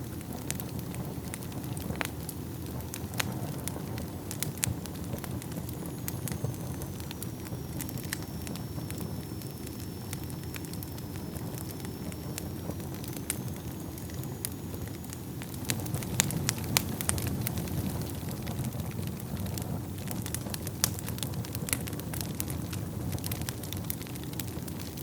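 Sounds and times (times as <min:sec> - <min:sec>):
fire crackling and popping: 0:00.0 - 0:25.0
wood fire burning: 0:00.0 - 0:25.0
faint high whistle: 0:05.7 - 0:15.4.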